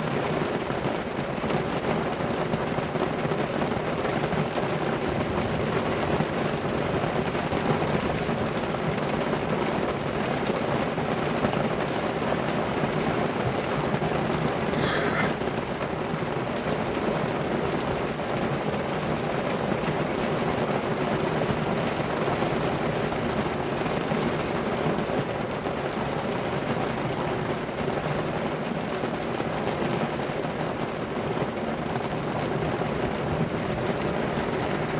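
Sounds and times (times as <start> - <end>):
heavy rain pouring: 30.1 - 34.9.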